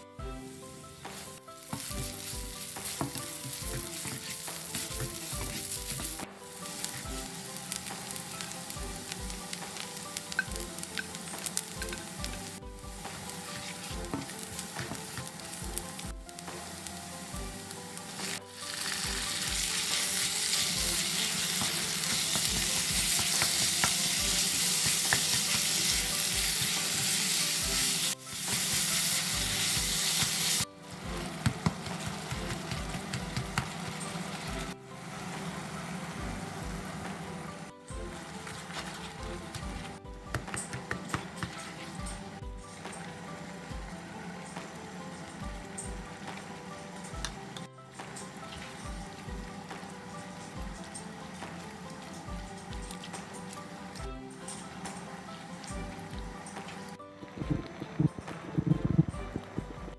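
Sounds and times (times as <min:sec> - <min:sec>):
onion sizzling in hot oil: 0:00.0 - 0:57.0
spatula stirring in wok: 0:00.6 - 0:34.8.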